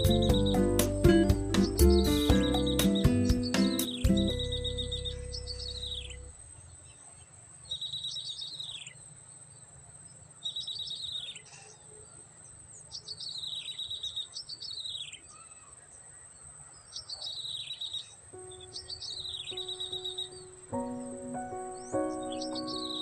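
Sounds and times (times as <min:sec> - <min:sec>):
bird song trills: 0:00.0 - 0:09.1, 0:10.4 - 0:12.1, 0:12.8 - 0:15.9, 0:16.8 - 0:23.0.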